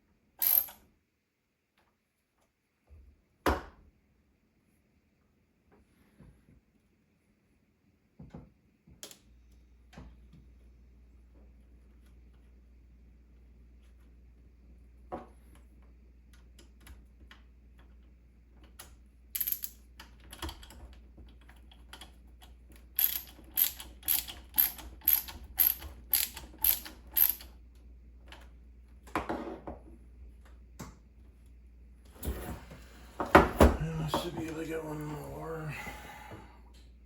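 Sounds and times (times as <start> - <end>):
ratchet-like mechanical clicks: 23.0 - 27.5.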